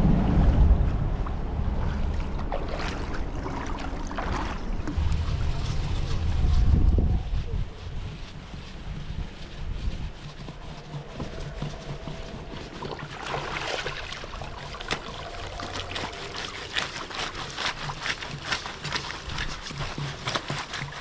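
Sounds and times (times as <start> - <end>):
river water running: 1.3 - 6.3, 10.6 - 21.0.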